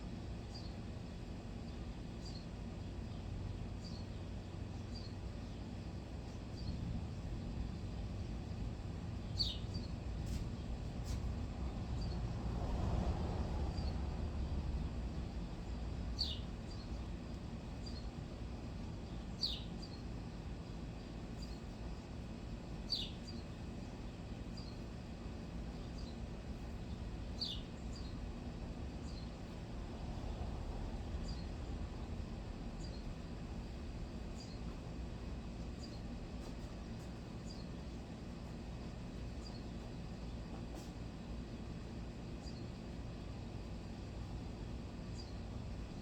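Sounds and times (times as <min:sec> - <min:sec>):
low background rumble: 0:03.0 - 0:40.6
bird chirping: 0:19.4 - 0:20.0, 0:22.9 - 0:23.4, 0:27.4 - 0:28.1.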